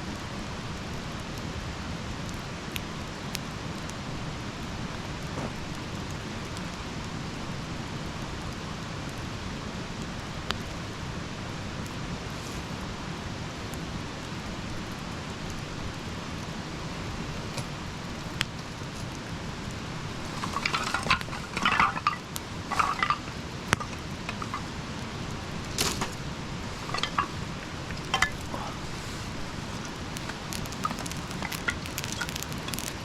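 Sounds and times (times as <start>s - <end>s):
campfire hissing and popping: 0.0s - 33.0s
clinking and rattling: 20.2s - 24.8s, 25.7s - 28.8s, 29.6s - 33.0s.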